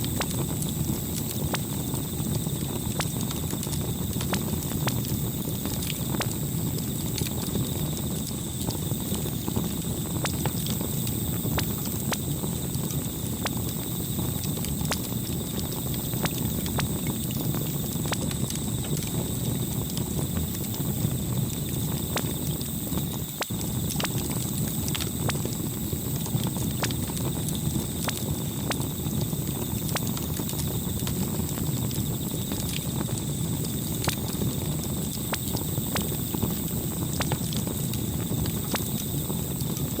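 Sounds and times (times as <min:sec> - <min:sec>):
campfire crackling: 0:00.0 - 0:40.0.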